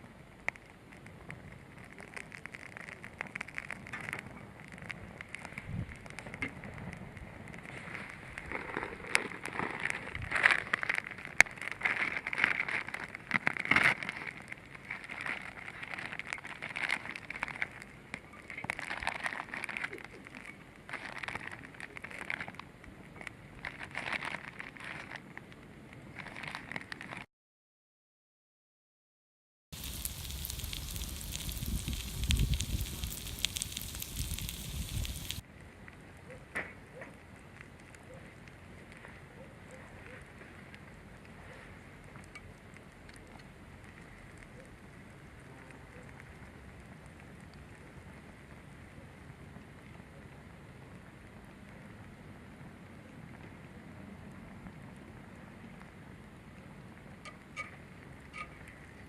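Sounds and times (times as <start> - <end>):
wood fire crackling and popping: 0.0 - 27.3, 29.7 - 36.0, 39.8 - 48.8.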